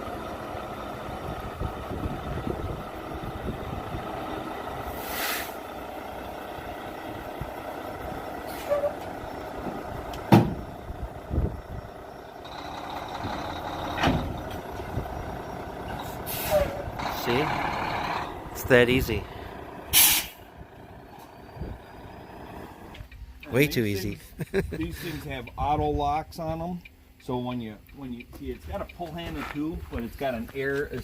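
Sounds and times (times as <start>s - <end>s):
truck engine running: 0.0s - 25.9s
air hisses: 4.9s - 5.6s, 19.9s - 20.4s
heavy metal clunks: 9.6s - 10.7s, 13.1s - 14.9s.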